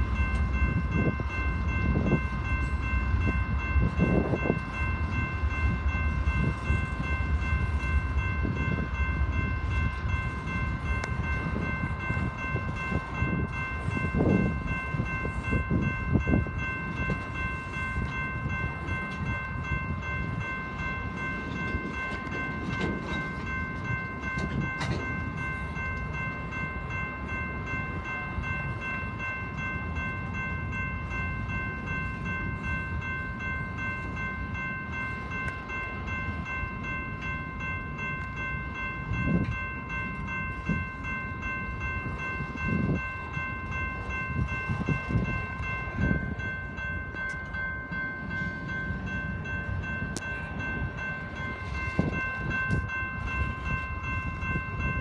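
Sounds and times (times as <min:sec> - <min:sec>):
crossing signal bell ringing: 0:00.0 - 0:55.0
train wheels rumbling on rail: 0:00.0 - 0:55.0.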